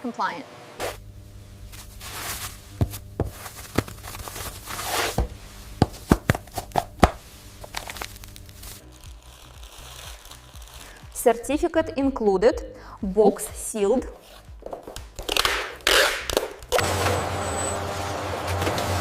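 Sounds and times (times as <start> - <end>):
low machine hum: 0.0 - 9.0
packing material rustling: 1.7 - 11.2.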